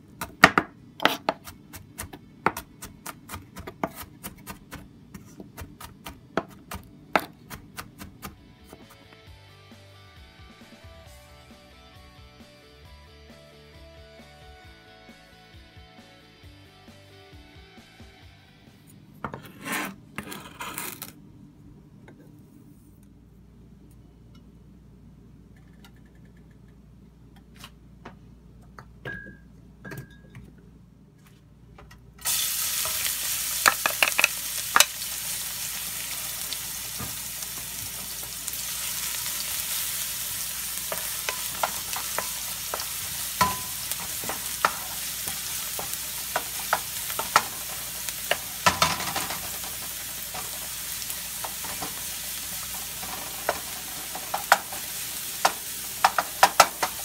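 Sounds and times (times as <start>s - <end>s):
garlic sizzling in hot oil: 32.2s - 57.0s.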